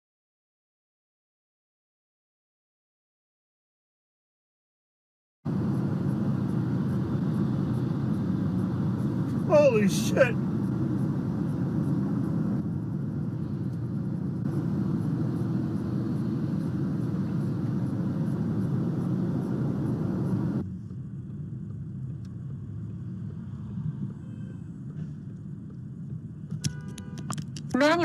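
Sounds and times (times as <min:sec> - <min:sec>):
car engine: 0:05.5 - 0:24.2
road noise: 0:05.5 - 0:28.0.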